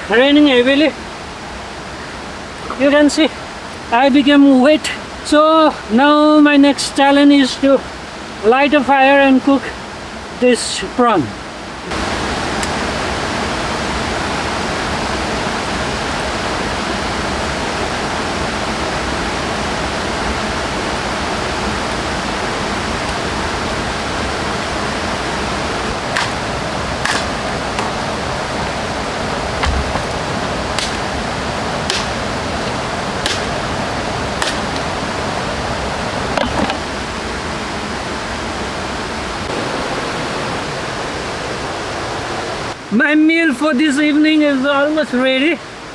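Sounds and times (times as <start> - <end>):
heavy rain falling: 0.0 - 42.8
short sharp knocks: 31.9 - 32.2, 33.2 - 33.5.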